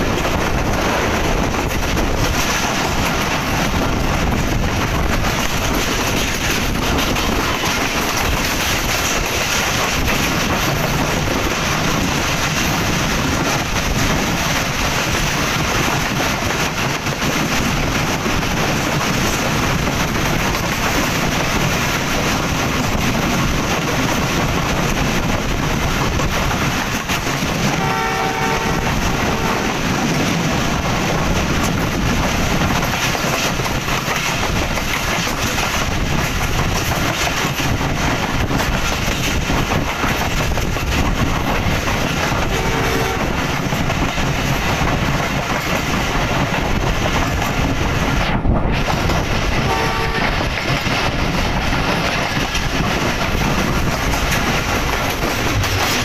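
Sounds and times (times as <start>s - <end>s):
train wheels on rails: 0.0s - 56.0s
wind rushing: 0.0s - 56.0s
train horn: 27.7s - 29.9s, 42.4s - 43.4s, 49.6s - 50.5s.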